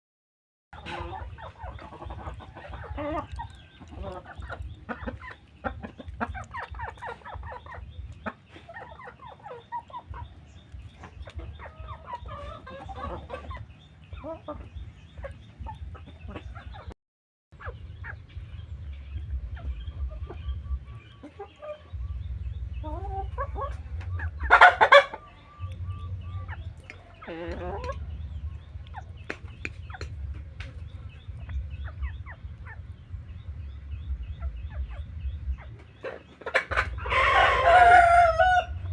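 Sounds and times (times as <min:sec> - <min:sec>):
chickens clucking and calling: 0:00.8 - 0:17.0, 0:17.6 - 0:38.9
loud chicken squawk: 0:22.9 - 0:25.8, 0:36.4 - 0:38.9.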